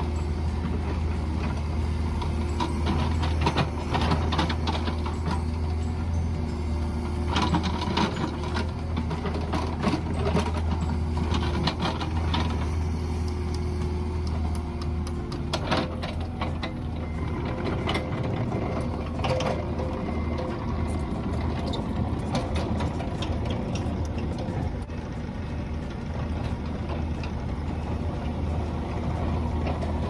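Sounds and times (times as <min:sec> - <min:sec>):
diesel engine running: 0:00.0 - 0:30.0
machine clanks and knocks: 0:02.2 - 0:06.3, 0:07.1 - 0:12.8.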